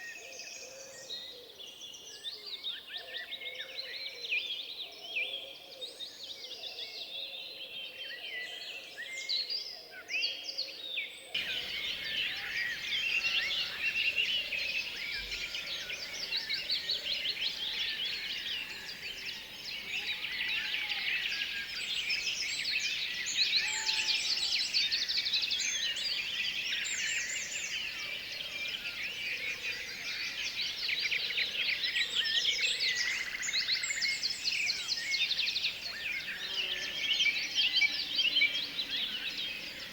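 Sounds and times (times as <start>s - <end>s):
birds chirping and trilling: 11.4s - 39.9s.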